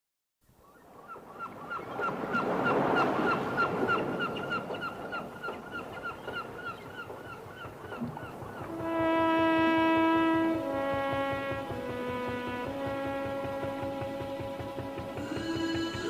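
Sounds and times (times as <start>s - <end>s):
gulls calling: 0.6s - 16.0s
surf rushing: 2.0s - 5.9s.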